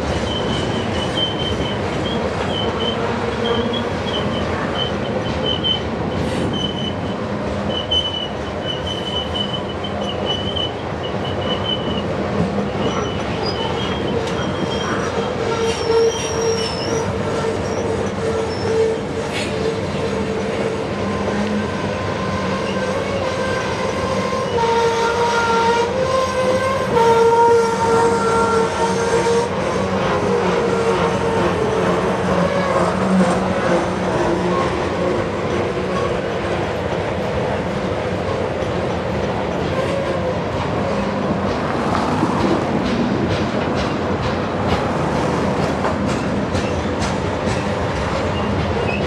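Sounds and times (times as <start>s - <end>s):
train wheel squeal: 0.0s - 35.2s, 46.5s - 49.0s
train wheels clattering on rails: 0.0s - 49.0s.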